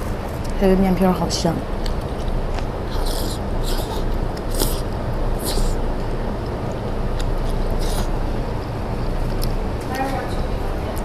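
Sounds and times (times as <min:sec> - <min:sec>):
steady low rumble: 0:00.0 - 0:11.0
person slurping noodles: 0:02.9 - 0:05.8, 0:07.6 - 0:08.2.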